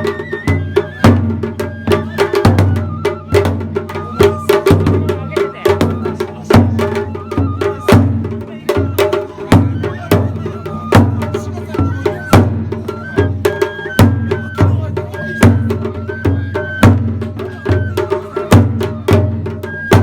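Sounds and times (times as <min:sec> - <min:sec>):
high flute melody: 0:00.0 - 0:20.0
taiko drums beating: 0:00.0 - 0:20.0.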